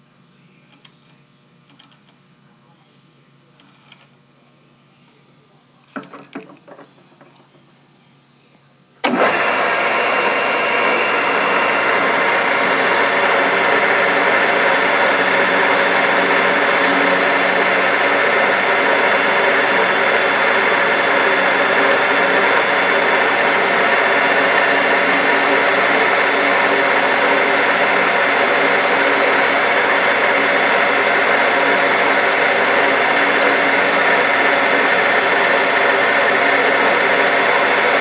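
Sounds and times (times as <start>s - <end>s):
metal lathe humming and whining: 9.0s - 38.0s.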